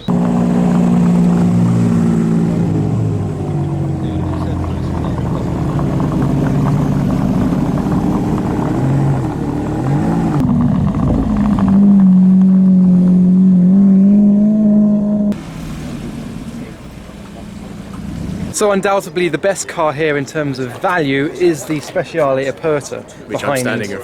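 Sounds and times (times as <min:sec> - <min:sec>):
car engine running: 0:00.0 - 0:18.5.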